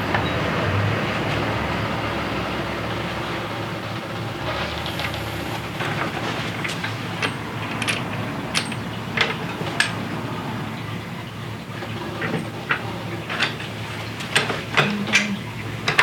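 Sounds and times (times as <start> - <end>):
steady background hum: 0.0 - 16.0
hand tools clinking on metal: 6.6 - 10.0, 14.2 - 16.0.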